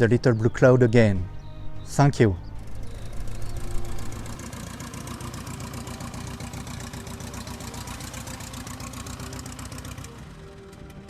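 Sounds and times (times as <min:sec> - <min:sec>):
small plane piston engine running: 0:02.4 - 0:11.0.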